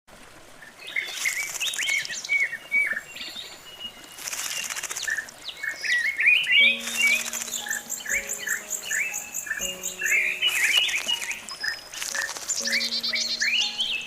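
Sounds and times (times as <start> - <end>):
thrush singing: 6.6 - 14.0.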